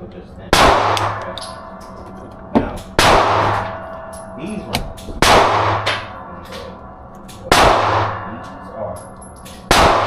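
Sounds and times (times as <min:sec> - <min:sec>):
pistol shots: 0:00.6 - 0:01.6, 0:02.9 - 0:03.9, 0:04.7 - 0:06.2, 0:07.5 - 0:08.3, 0:09.6 - 0:10.0.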